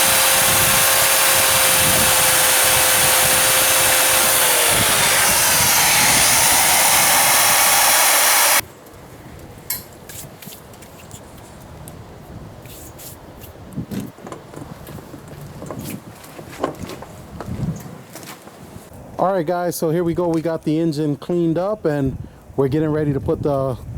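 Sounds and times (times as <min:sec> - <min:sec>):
power tool grinding: 0:00.0 - 0:08.6.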